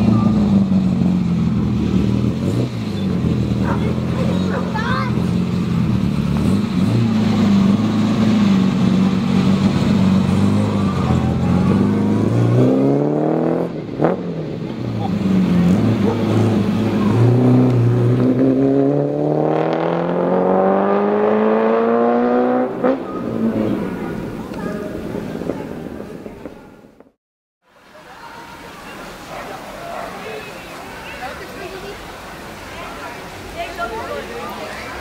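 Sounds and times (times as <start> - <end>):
car engine accelerating: 0.0 - 26.2.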